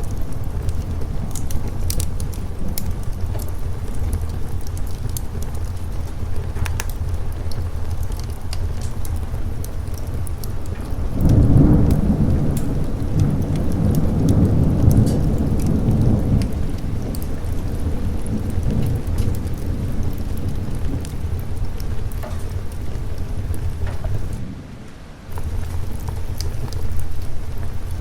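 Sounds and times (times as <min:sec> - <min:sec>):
raindrops ticking: 0:00.0 - 0:24.5, 0:25.2 - 0:28.0
steady rain: 0:00.0 - 0:28.0
thunder rumbling: 0:00.0 - 0:28.0.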